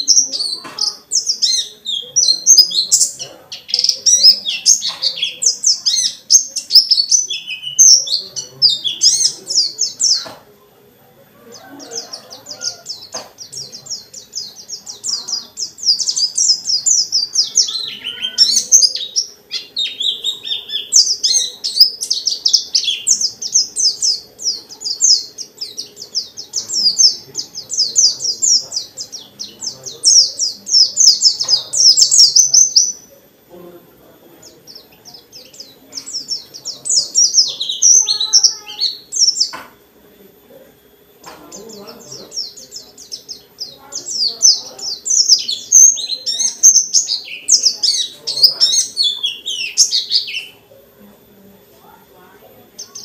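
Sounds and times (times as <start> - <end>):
bird twittering song: 0.0 - 10.5, 11.5 - 33.2, 34.3 - 39.8, 41.2 - 50.8, 52.7 - 53.0.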